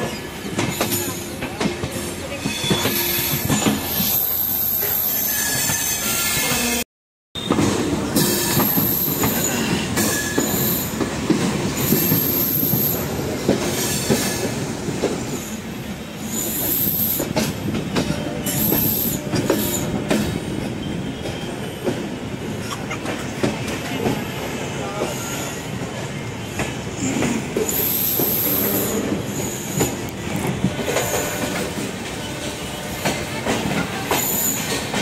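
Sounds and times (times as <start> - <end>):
train rumble and hiss: 0.0 - 6.8, 7.4 - 35.0
high-pitched wheel squeals: 2.4 - 6.8
train wheel clacks: 16.4 - 35.0.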